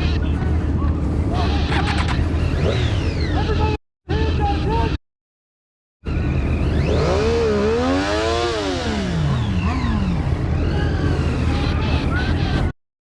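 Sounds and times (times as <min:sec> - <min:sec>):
vehicle engine starting and revving: 0:01.3 - 0:03.6, 0:06.1 - 0:12.7.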